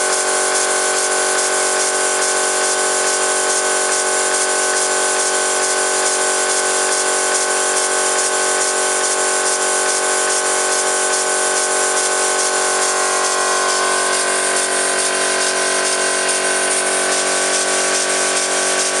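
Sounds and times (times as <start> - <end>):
steam engine exhaust hissing: 0.0 - 19.0
mechanical whine: 8.2 - 19.0.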